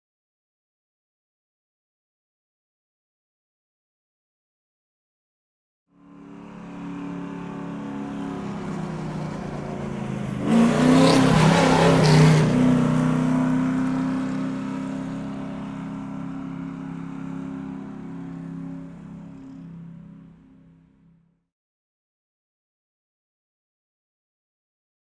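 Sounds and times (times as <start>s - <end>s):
car driving past: 6.0s - 21.2s.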